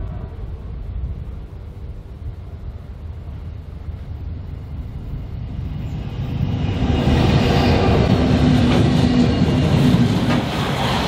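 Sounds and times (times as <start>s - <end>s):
train passing rumble: 0.0s - 11.0s.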